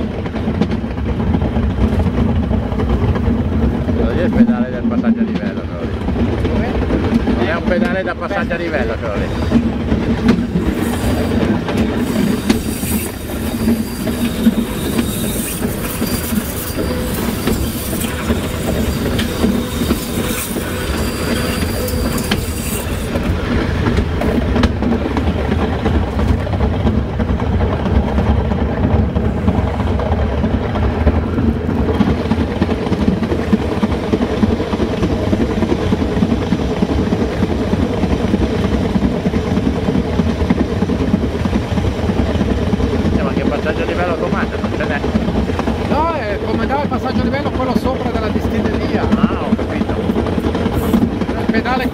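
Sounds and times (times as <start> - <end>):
clatter over rails: 0.0 - 51.9
train wheels rumbling on rails: 0.0 - 51.9
high wheel squeal: 10.5 - 23.3.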